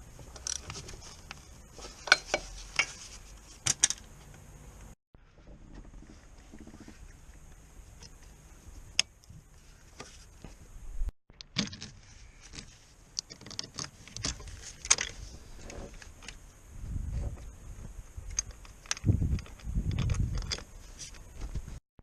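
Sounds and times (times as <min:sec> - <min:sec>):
metallic clinks of tools and parts: 0:02.0 - 0:03.0.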